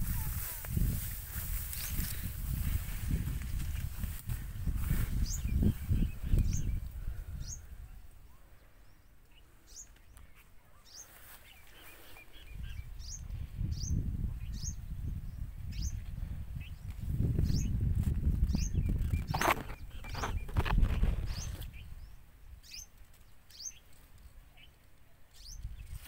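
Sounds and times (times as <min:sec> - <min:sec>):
bird chirping: 0:05.1 - 0:17.8, 0:18.4 - 0:26.0.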